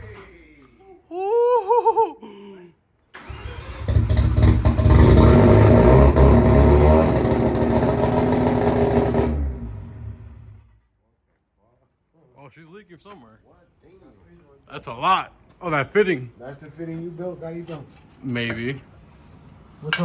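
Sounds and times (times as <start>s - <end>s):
rotary engine running loud: 3.9s - 10.6s.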